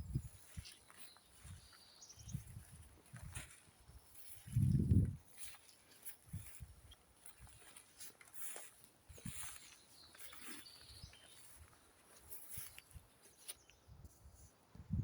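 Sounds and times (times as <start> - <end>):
soft footsteps on forest floor: 0.0 - 14.8
birds chirping and calling: 9.2 - 13.8.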